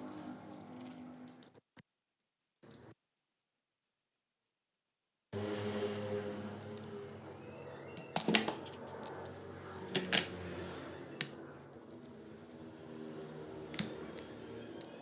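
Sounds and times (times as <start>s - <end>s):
small metal parts clinking: 0.0s - 1.6s, 8.0s - 10.2s.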